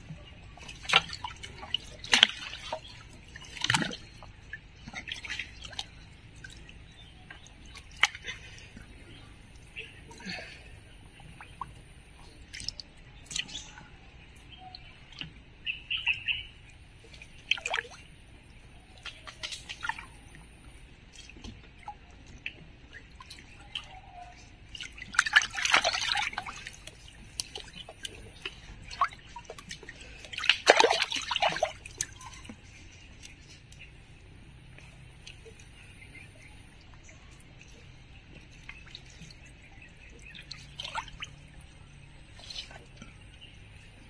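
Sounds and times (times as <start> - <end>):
water splashing: 0.0 - 13.8, 17.0 - 18.1, 18.8 - 33.4, 34.8 - 44.0.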